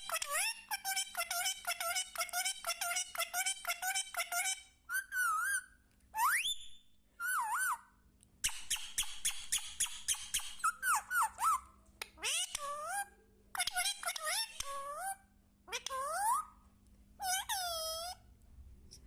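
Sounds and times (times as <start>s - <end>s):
parrot squeaky calls: 0.0s - 16.6s, 17.2s - 18.2s.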